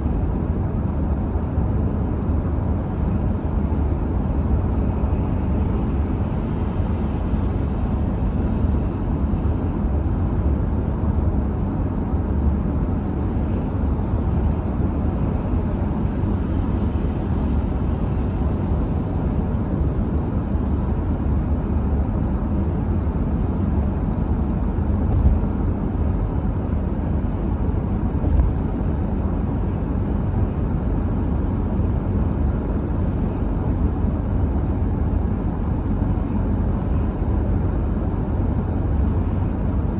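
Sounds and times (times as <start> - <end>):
car driving rumble: 19.7 - 31.9.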